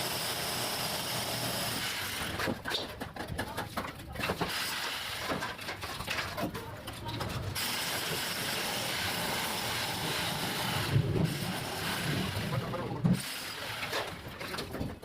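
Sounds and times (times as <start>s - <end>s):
excavator machine noise: 0.9s - 15.0s
debris clattering and knocking: 2.3s - 7.6s, 10.8s - 15.0s.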